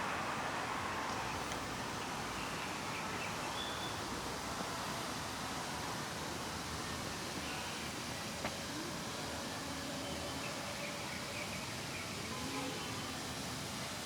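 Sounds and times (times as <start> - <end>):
outdoor ambient hiss: 0.0 - 14.0.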